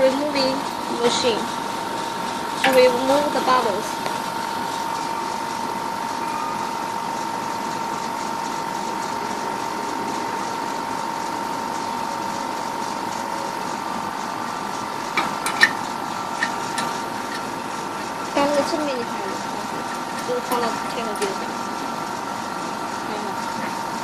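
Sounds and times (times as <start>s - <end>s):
machine hum with whine: 0.0s - 24.0s.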